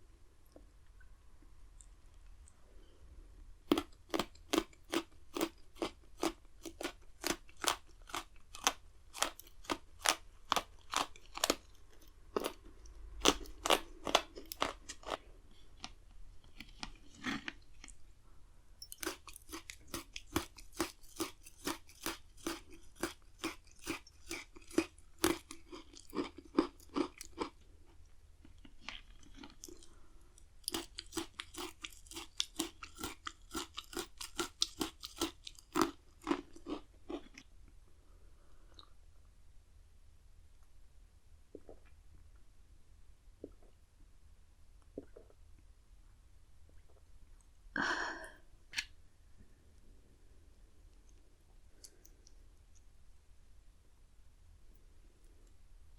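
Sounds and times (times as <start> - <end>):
biscuit sticks crunching: 3.7 - 12.6, 13.2 - 15.2, 18.9 - 27.5, 30.6 - 37.4.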